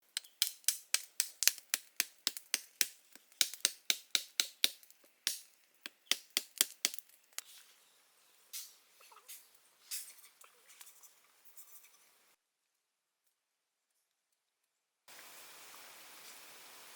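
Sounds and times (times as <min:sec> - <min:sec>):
sharp clicks or taps: 0:00.2 - 0:07.4.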